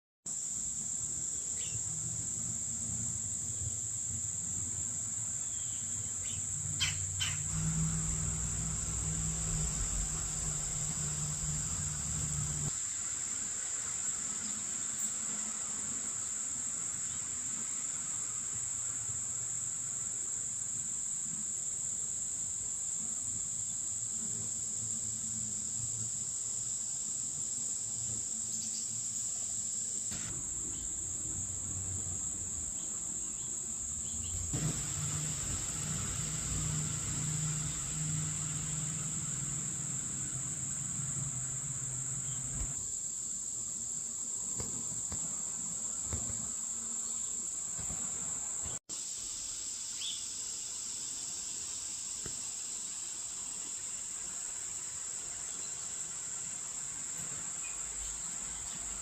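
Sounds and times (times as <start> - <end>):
high-pitched insect chorus: 0.3 - 59.0
low hum: 7.0 - 12.7, 33.9 - 42.8.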